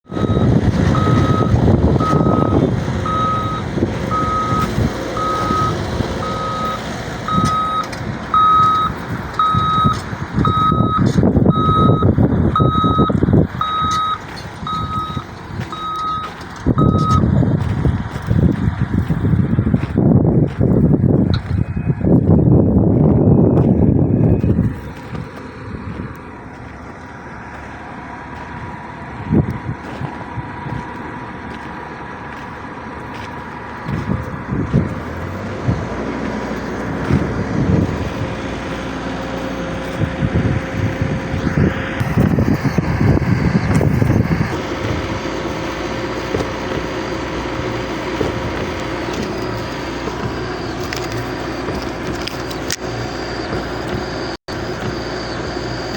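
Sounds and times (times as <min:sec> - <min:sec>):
bulldozer diesel engine running: 0:00.0 - 0:55.9.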